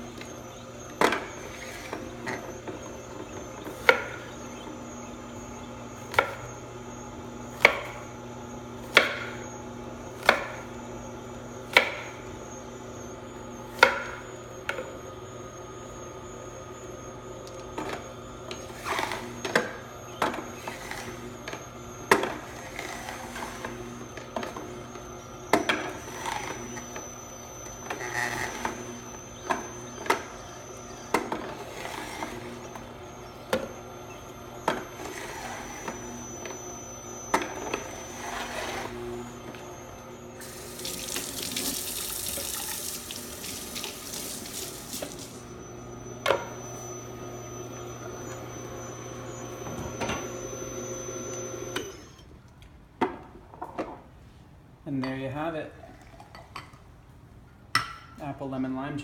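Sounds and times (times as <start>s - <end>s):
knife chopping on wooden board: 8.9s - 9.4s, 10.2s - 10.6s.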